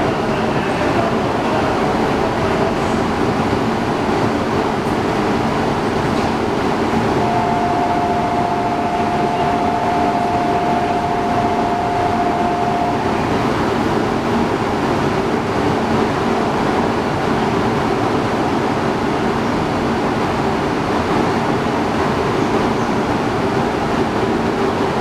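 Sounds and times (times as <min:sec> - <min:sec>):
train running noise: 0:00.0 - 0:25.0
two-note electronic tone: 0:07.2 - 0:13.4.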